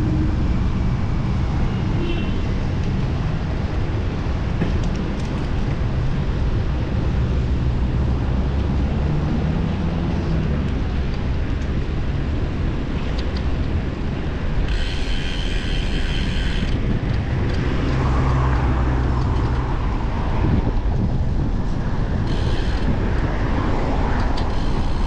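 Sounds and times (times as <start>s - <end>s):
wind and road rumble: 0.0s - 25.0s
bicycle freewheel ticking: 14.7s - 16.8s, 22.3s - 22.8s, 24.4s - 25.0s.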